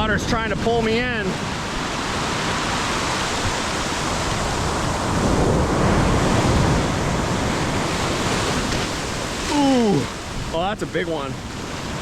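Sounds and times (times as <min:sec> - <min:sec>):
backwash pulling at water's edge: 0:00.0 - 0:12.0
ocean surf breaking: 0:00.0 - 0:12.0.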